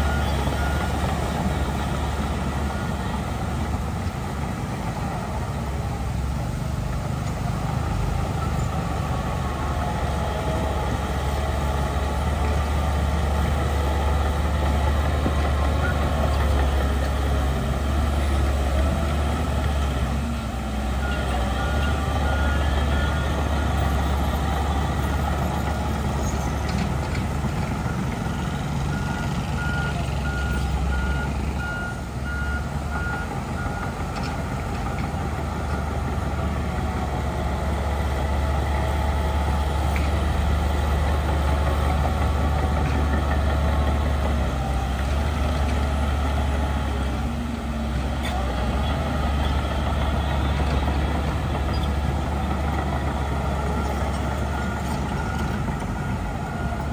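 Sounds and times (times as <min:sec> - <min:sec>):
heavy diesel machinery rumble: 0:00.0 - 0:56.9
reversing alarm beeping: 0:27.8 - 0:34.0.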